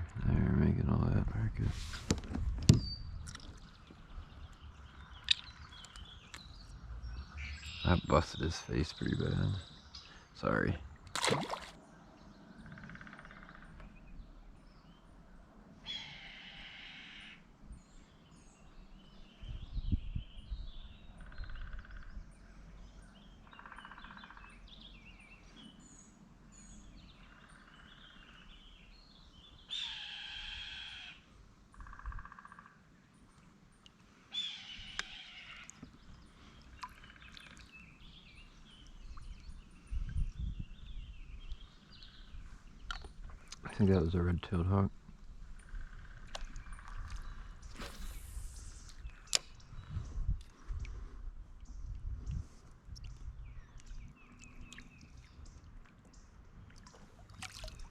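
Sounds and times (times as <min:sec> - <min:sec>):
small birds chirping: 0:02.7 - 0:15.2, 0:33.2 - 0:57.9.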